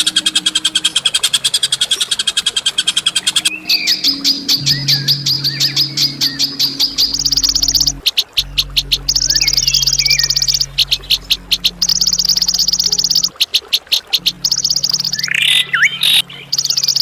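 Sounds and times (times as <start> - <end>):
steady low hum: 3.4 - 17.0.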